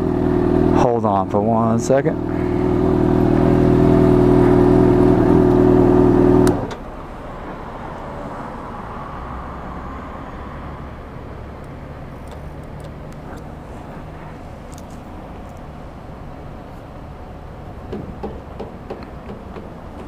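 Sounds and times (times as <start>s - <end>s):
motorcycle engine running: 0.0s - 6.7s.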